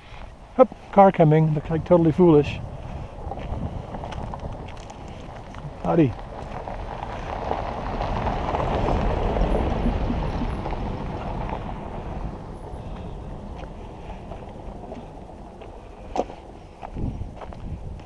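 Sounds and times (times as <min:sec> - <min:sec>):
car driving past: 0:06.3 - 0:15.7.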